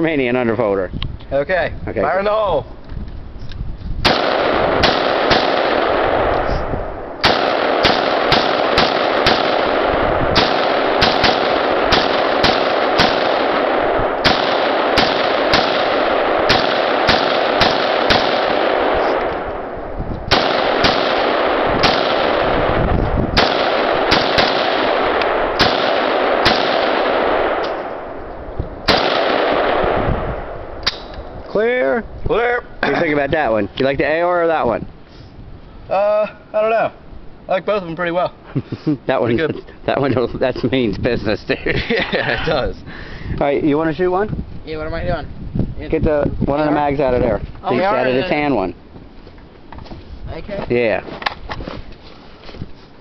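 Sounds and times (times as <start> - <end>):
rifle firing rapid single shots: 4.0 - 28.2, 28.8 - 31.1.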